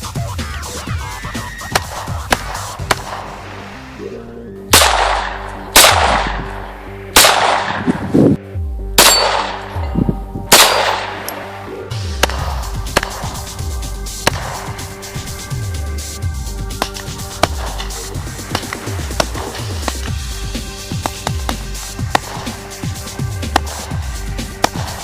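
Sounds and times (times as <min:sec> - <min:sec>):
electronic background music: 0:00.0 - 0:25.0
gunshots: 0:01.7 - 0:03.6, 0:04.7 - 0:08.2, 0:09.0 - 0:09.8, 0:10.5 - 0:13.6, 0:14.2 - 0:15.4, 0:16.7 - 0:20.3, 0:20.9 - 0:25.0.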